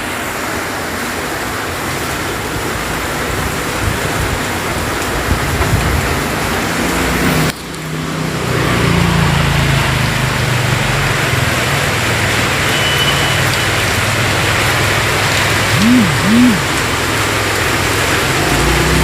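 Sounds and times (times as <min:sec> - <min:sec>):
heavy rain falling: 0:00.0 - 0:19.0
vehicle engine running low: 0:13.7 - 0:19.0.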